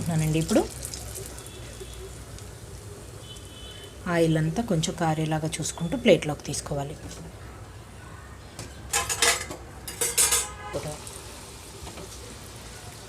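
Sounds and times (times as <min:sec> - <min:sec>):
oil sizzling: 0:00.0 - 0:06.0, 0:08.9 - 0:13.0
metal spoon clinking on pan: 0:08.9 - 0:10.6.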